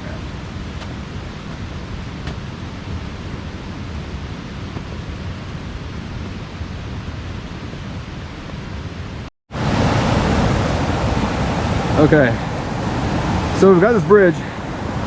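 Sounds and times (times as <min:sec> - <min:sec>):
waterfall rushing: 0:09.5 - 0:15.0.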